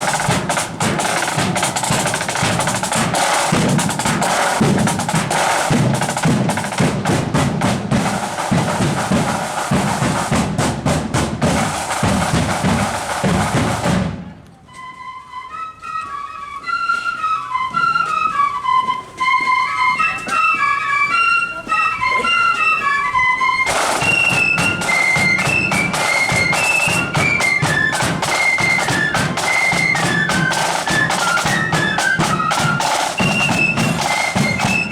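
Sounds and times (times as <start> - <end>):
snare and bass drums: 0.0 - 14.4, 23.6 - 34.9
flutes playing melody: 0.0 - 34.9.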